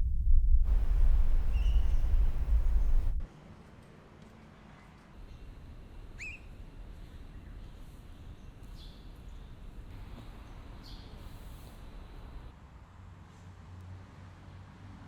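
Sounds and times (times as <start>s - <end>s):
low rumble: 0.0s - 3.2s
bird chirps: 0.7s - 3.2s, 6.2s - 7.7s.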